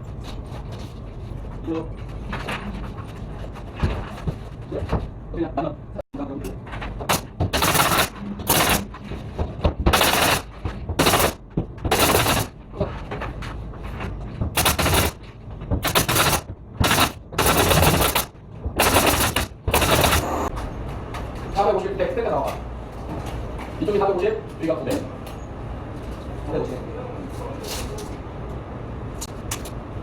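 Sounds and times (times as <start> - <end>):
pneumatic staple gun firing: 7.1 - 9.0, 10.0 - 12.5, 14.6 - 15.2, 15.8 - 20.5.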